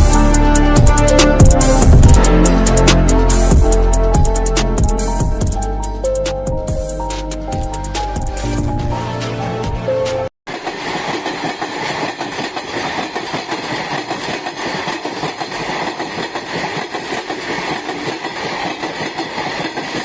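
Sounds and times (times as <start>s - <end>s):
train wheels rumbling on rails: 0.0s - 5.7s, 10.5s - 20.0s
intro music: 0.0s - 10.3s.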